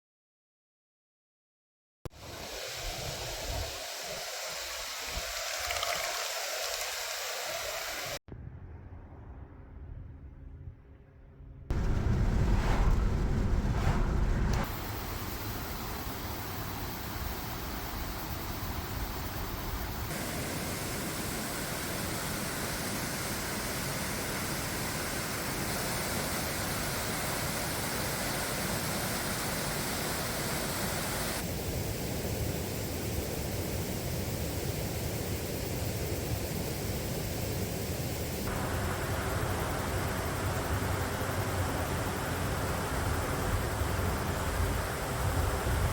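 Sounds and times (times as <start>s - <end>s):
steady rushing outdoor noise: 11.7s - 45.9s.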